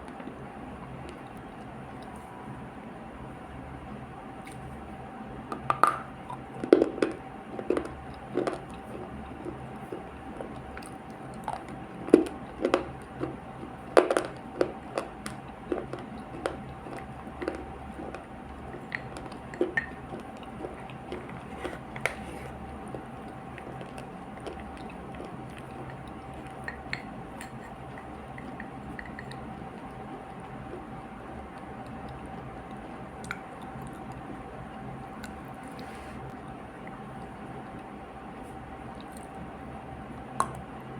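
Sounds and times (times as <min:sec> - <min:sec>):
faint hum: 0:00.0 - 0:40.9
wet chewing crunches: 0:06.2 - 0:34.5.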